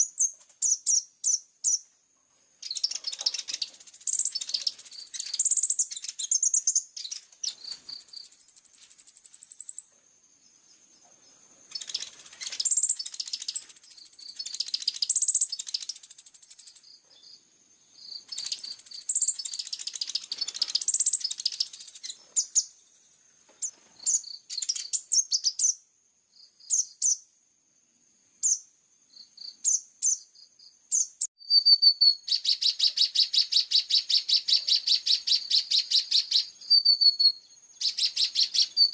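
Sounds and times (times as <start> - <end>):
bird rattling song: 0.0 - 1.9, 2.6 - 9.9, 11.2 - 17.4, 18.0 - 22.8, 23.4 - 25.8, 30.9 - 38.9
sunbird chirps and trills: 0.0 - 38.9.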